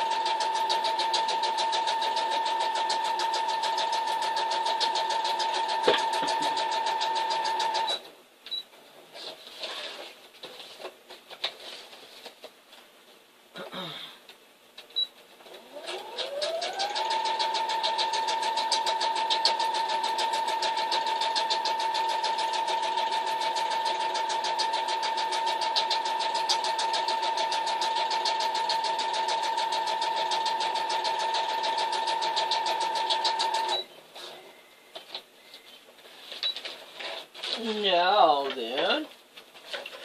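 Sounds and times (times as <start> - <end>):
electric sewing machine stitching: 0.0 - 8.0, 15.6 - 33.8.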